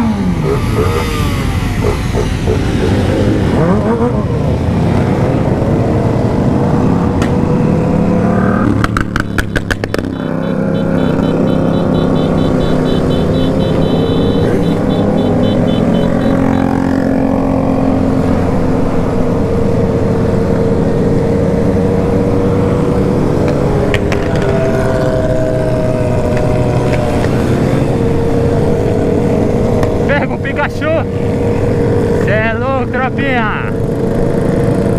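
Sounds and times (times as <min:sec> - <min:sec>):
motorcycle engines revving: 0:00.0 - 0:34.9
sharp cracks of exhaust popping: 0:08.8 - 0:10.4.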